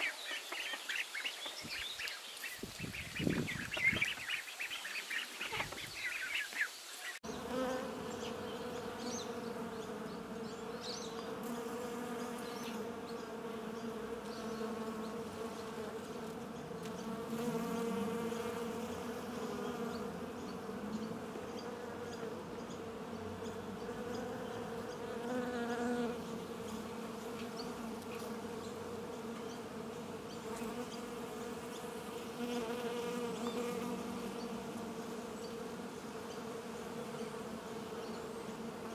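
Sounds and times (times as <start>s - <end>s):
flying insects buzzing: 0.0s - 38.9s.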